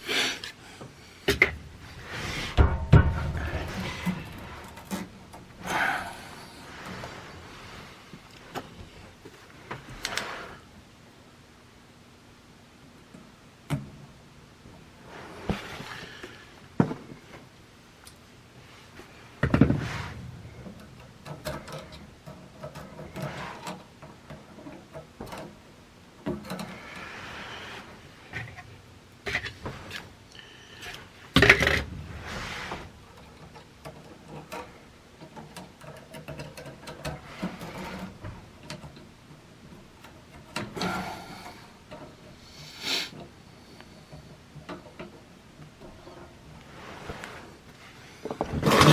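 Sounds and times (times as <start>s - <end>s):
small clicks and knocks: 33.2s - 39.1s.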